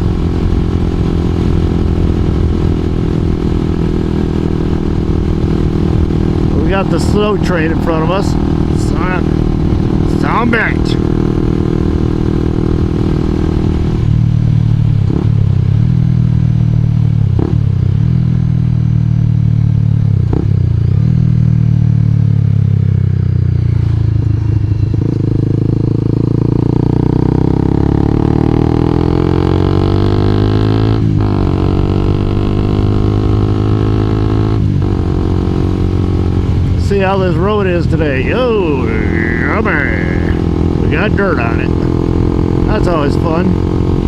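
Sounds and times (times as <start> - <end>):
motorcycle engine accelerating: 0.0 - 44.0.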